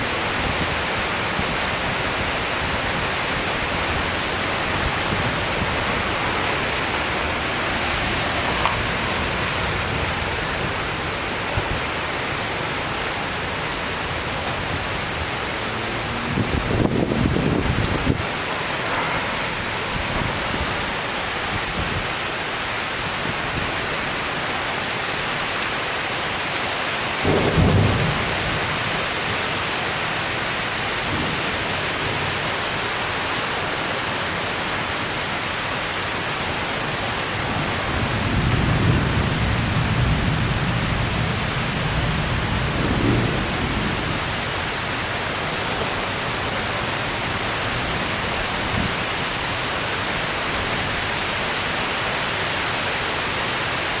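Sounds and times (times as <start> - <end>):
heavy rain: 0.0 - 54.0
thunder: 15.8 - 21.7, 27.2 - 28.8.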